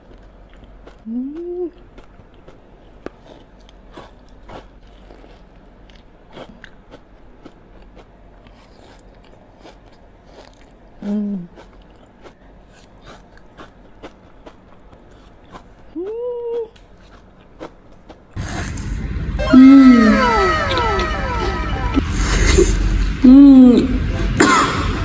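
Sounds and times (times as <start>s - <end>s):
chewing and crunching cookie: 0.0s - 18.8s.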